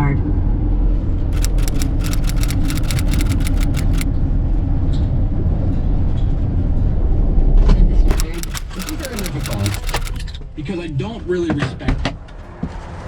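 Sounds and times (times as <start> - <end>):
rapid sharp clicks: 1.2 - 4.1, 8.1 - 10.2.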